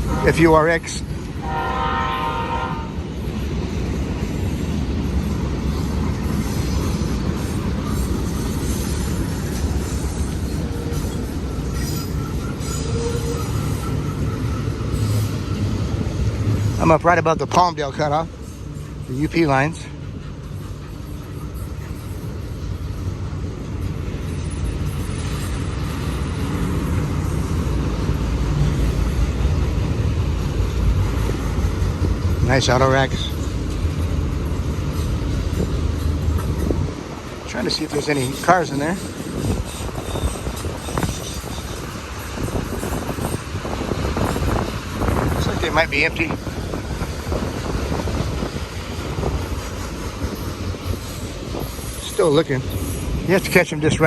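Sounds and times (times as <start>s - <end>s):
locomotive horn: 0.0s - 0.7s, 1.4s - 3.0s
freight train wheels rumbling: 0.0s - 54.0s.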